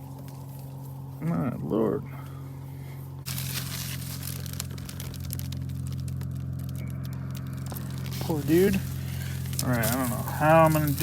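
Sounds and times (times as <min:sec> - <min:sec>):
dry reeds rustling and crackling: 0:00.0 - 0:11.0
steady low hum: 0:00.0 - 0:11.0.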